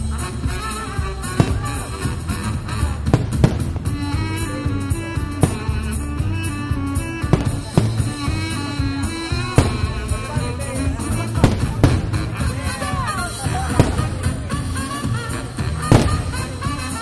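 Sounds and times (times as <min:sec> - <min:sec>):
music with heavy drum beat: 0:00.0 - 0:17.0
sharp firework bangs: 0:01.2 - 0:06.5, 0:07.2 - 0:10.5, 0:11.2 - 0:12.6, 0:13.5 - 0:17.0.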